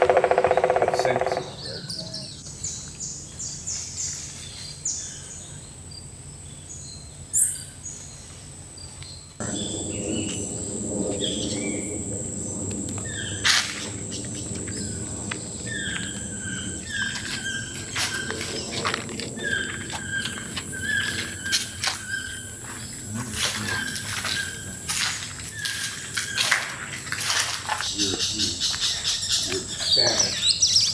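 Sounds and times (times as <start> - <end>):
birds chirping and whistling: 0.0 - 5.4, 9.1 - 30.9
insect drone: 0.0 - 30.9
low rumble: 9.4 - 25.6.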